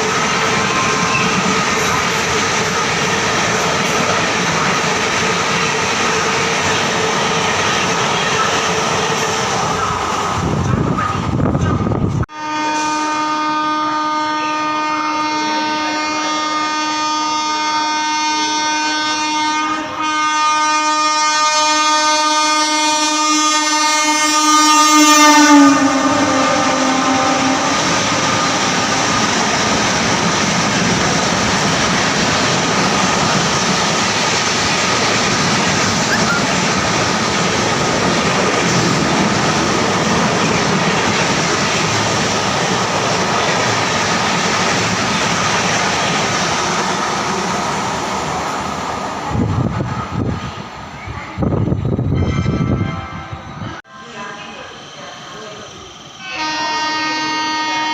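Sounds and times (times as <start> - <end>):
train wheels rumbling on rails: 0.0 - 13.2, 21.7 - 56.9
train horn blast: 12.3 - 29.8, 52.1 - 53.6, 56.2 - 57.9.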